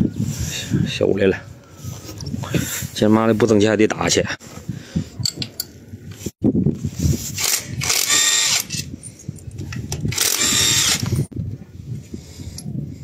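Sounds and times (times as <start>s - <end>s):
power tool running: 7.4s - 8.7s, 10.1s - 11.2s.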